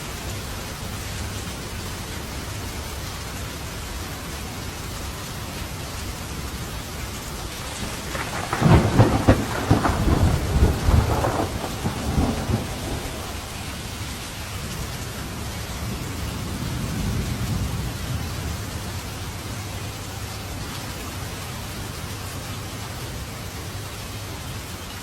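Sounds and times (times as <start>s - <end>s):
steady rain: 0.0s - 25.0s
thunder crackling and rumbling: 7.2s - 19.9s.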